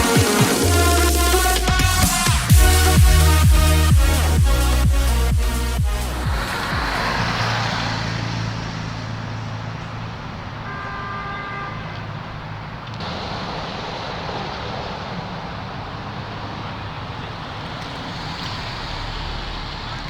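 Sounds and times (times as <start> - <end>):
car horn: 0.0 - 12.4
car engines idling: 0.0 - 20.0
traffic noise: 0.0 - 20.0.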